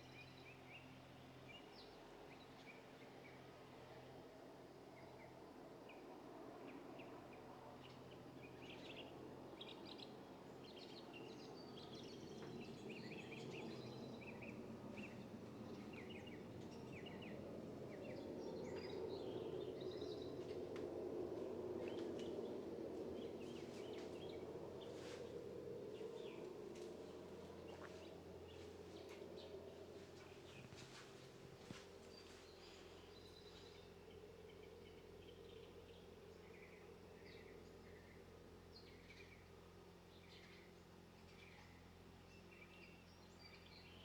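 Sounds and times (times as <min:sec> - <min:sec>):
low background rumble: 0:07.7 - 0:41.8
small birds chirping: 0:07.8 - 0:44.0.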